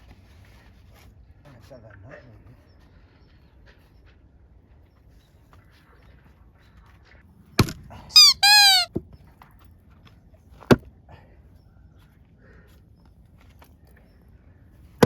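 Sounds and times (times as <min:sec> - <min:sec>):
short high squeal: 0:08.1 - 0:08.9.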